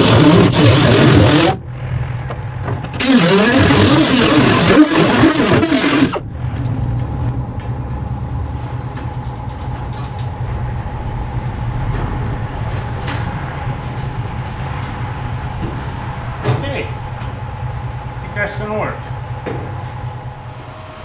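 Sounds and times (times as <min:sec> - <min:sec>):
cutoff wheel grinding steel: 0:00.0 - 0:01.6, 0:02.8 - 0:06.2
low machine hum with whine: 0:00.0 - 0:21.0.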